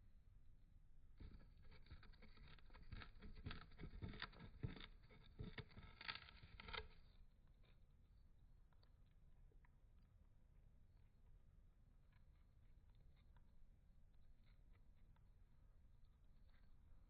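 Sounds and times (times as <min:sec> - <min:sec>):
bird nibbling cardboard: 0:01.2 - 0:07.9.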